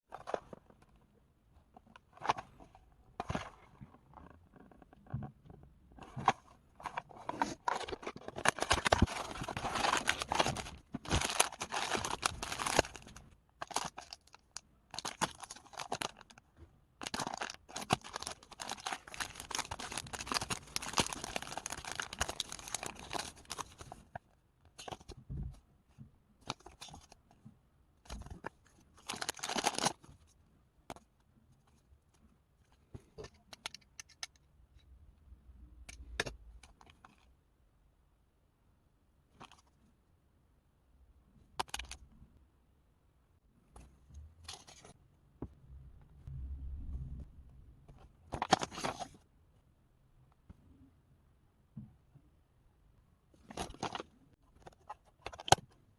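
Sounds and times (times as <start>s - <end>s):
foil wrappers tearing and crinkling: 7.9s - 14.4s.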